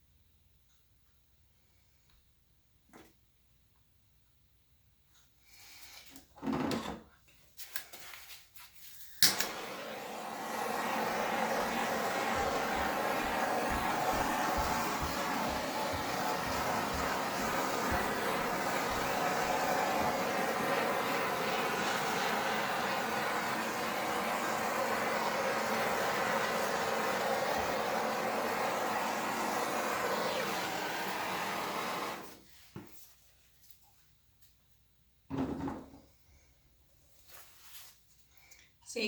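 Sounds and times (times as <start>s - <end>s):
hair dryer blowing: 9.2s - 32.4s.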